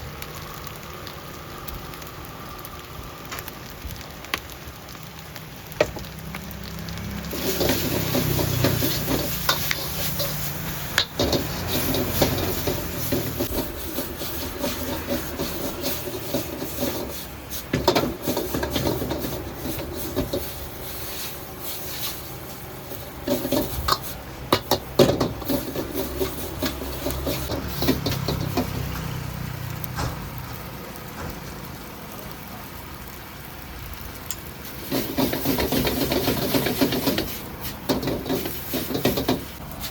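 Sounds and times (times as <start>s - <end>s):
food sizzling: 0.0s - 39.9s
metal spatula scraping a pan: 7.1s - 28.9s, 34.6s - 39.9s.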